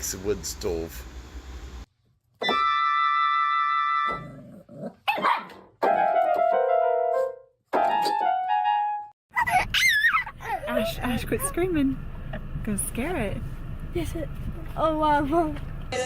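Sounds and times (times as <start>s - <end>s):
dog barking: 5.0s - 6.0s.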